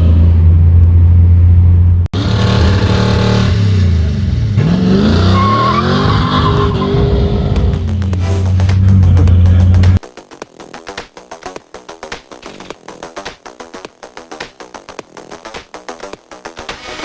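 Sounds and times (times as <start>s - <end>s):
car engine droning: 0.0s - 10.0s
car engine revving: 0.0s - 10.0s.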